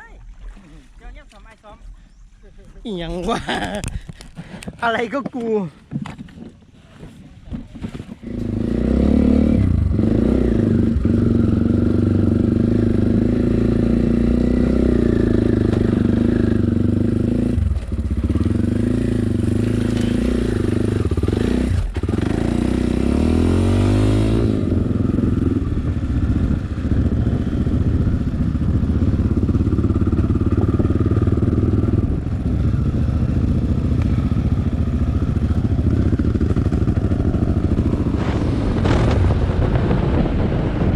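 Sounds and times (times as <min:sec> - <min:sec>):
dirt bike engine running: 0:08.2 - 0:40.9.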